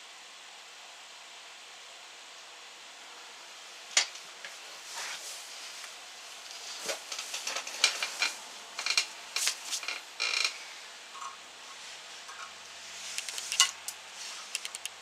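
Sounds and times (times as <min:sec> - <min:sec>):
faint hiss: 0:00.0 - 0:15.0
small hard objects clicking: 0:13.2 - 0:15.0.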